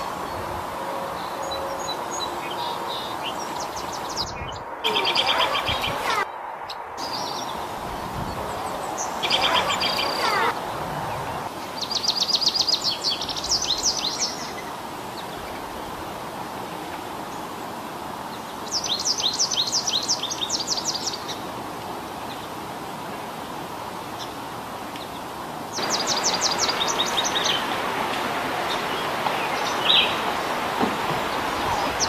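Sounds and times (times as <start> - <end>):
steady outdoor hiss: 0.0 - 32.0
bird calling in rapid high notes: 4.8 - 6.3, 9.1 - 10.6.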